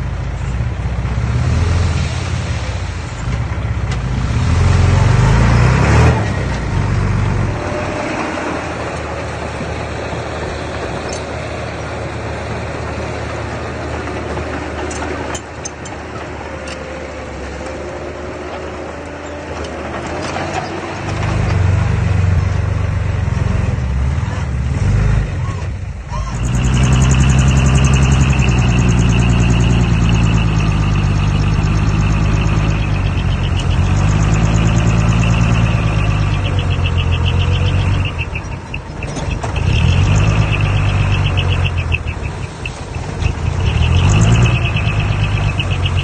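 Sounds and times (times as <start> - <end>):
earthmoving machine diesel engine: 0.0 - 46.0.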